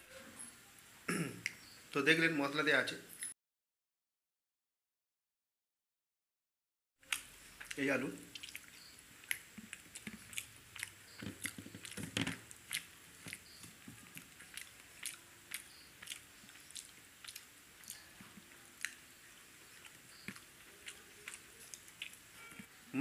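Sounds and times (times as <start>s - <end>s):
man chewing: 7.0s - 22.7s.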